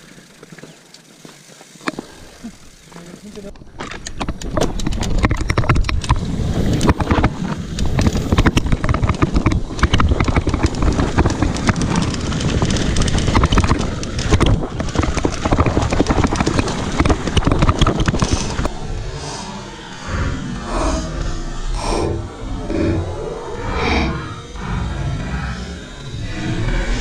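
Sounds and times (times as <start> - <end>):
bike rattling and clattering: 0.0 - 18.8.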